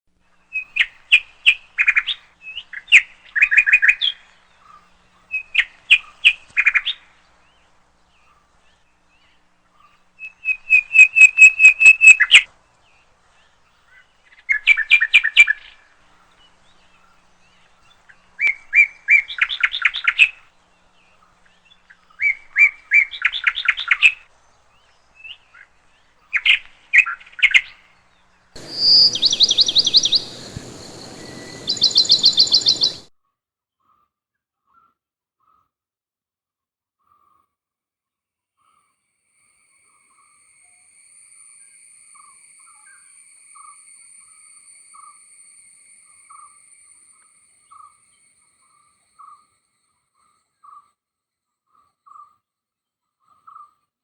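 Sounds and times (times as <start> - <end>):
bird singing: 0.3 - 33.1, 39.8 - 50.8
steady hiss: 27.9 - 33.1.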